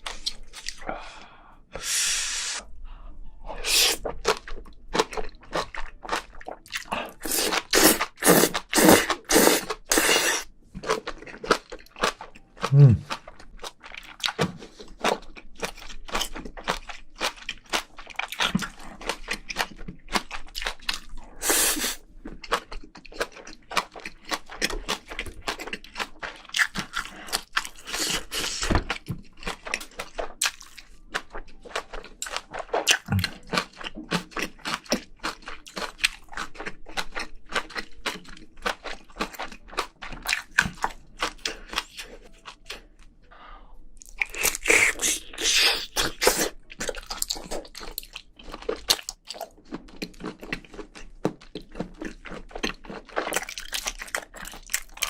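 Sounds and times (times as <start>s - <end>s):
person chewing and crunching: 0.0s - 1.0s, 3.6s - 43.1s, 43.9s - 55.0s.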